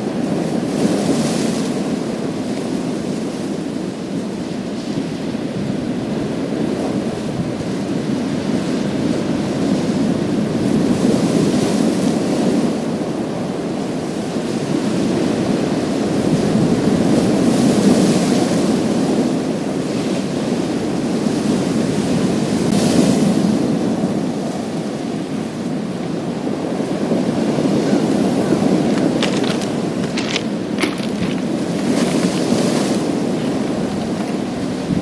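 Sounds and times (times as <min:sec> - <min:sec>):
waves breaking on pebbles: 0:26.9 - 0:35.0.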